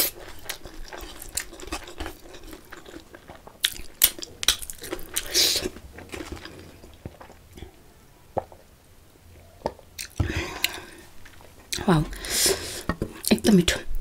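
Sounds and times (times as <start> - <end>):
wet chewing and lip smacks: 0.0 - 7.4, 9.6 - 11.8.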